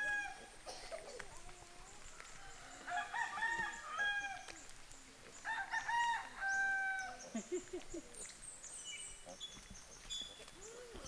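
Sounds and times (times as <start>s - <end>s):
rooster crowing: 2.6s - 4.4s, 5.5s - 7.2s.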